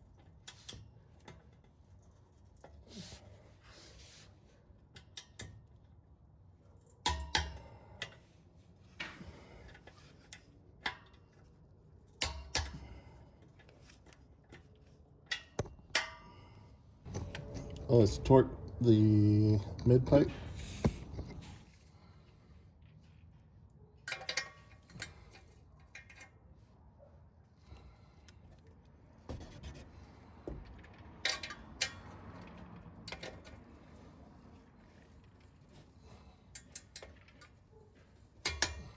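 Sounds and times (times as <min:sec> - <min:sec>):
metallic clicks of hand tools: 0:05.0 - 0:05.6, 0:07.0 - 0:08.2, 0:12.2 - 0:13.0, 0:38.4 - 0:38.9.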